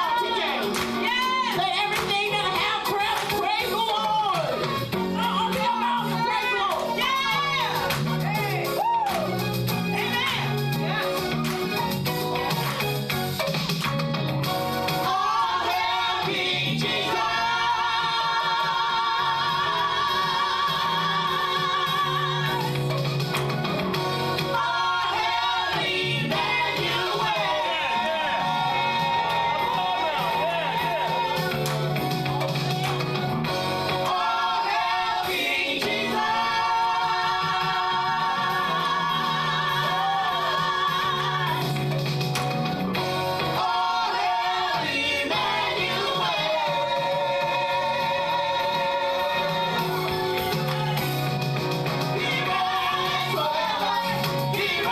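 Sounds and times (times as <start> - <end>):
choir singing: 0.0 - 3.0, 15.0 - 22.8, 24.4 - 31.7, 33.8 - 41.8, 43.4 - 51.1, 52.1 - 54.9
worship band playing: 0.0 - 54.9.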